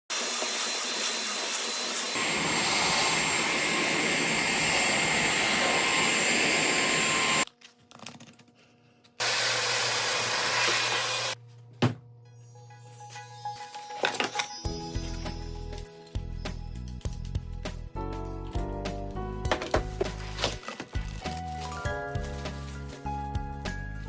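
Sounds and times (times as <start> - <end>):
cordless vacuum running: 0.2 - 7.4, 9.2 - 11.4.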